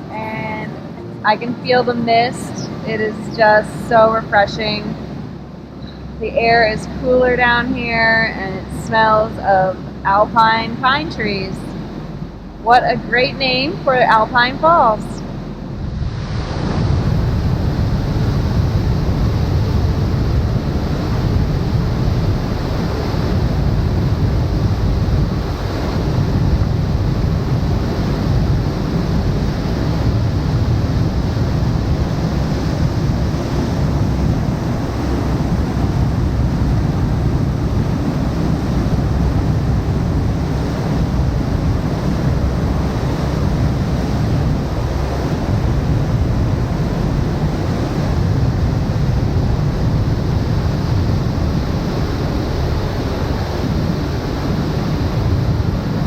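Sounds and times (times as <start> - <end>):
waterfall rushing: 14.0 - 56.0.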